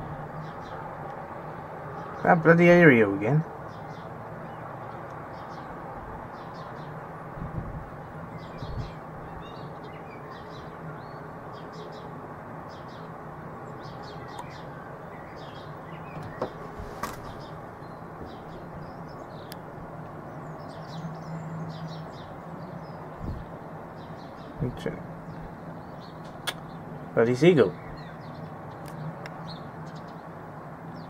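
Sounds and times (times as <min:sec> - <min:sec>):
small birds chirping: 0:00.0 - 0:31.0
sharp click: 0:26.2 - 0:26.6.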